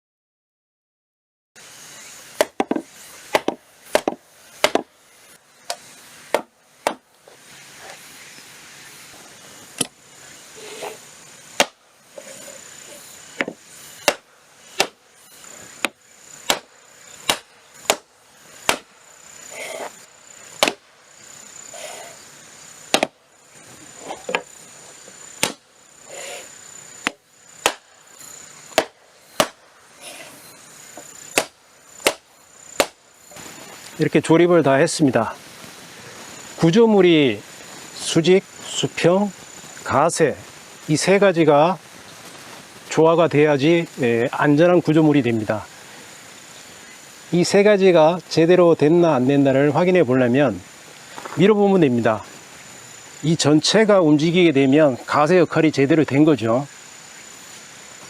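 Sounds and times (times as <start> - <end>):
wooden knocks: 2.4 - 4.9.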